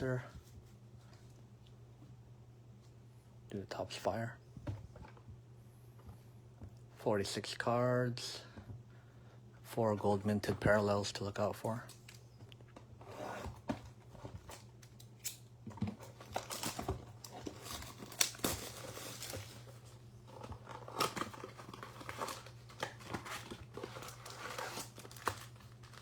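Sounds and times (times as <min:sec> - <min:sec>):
plastic wrap crinkling: 0:16.0 - 0:26.0
cardboard tearing: 0:16.1 - 0:19.7, 0:20.4 - 0:26.0.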